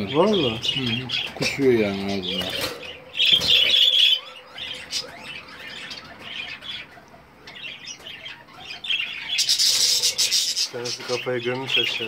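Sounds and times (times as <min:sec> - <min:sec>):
budgerigars squawking and chirping: 0:00.0 - 0:12.0.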